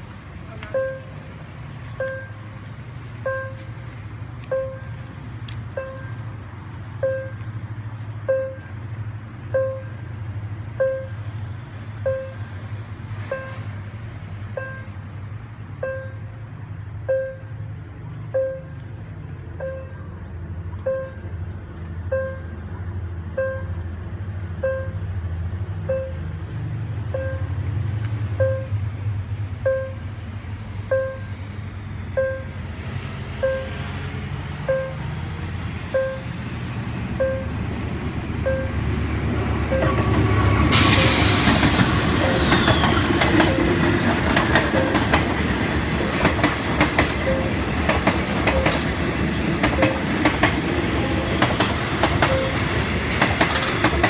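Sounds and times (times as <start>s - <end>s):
level-crossing warning bell: 0.5s - 3.8s, 4.4s - 5.1s, 5.7s - 6.4s, 8.2s - 8.9s, 9.5s - 10.1s, 12.0s - 13.8s, 14.5s - 15.0s, 19.6s - 20.2s, 20.8s - 21.5s, 22.1s - 22.7s, 30.9s - 31.4s, 33.3s - 36.4s, 37.2s - 37.6s, 38.4s - 41.1s, 42.0s - 54.0s.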